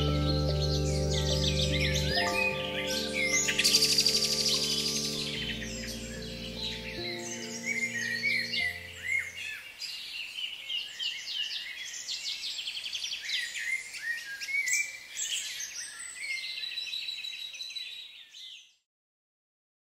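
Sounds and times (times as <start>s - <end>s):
birds chirping and singing: 0.0s - 18.8s.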